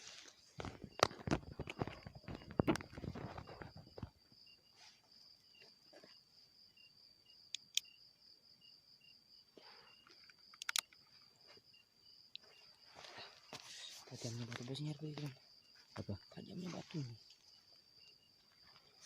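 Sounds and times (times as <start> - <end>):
insect chirps: 0.0 - 19.0
insect high-pitched trill: 0.0 - 19.0
sharp clicks: 10.2 - 11.0
steps or rustling: 12.6 - 17.6.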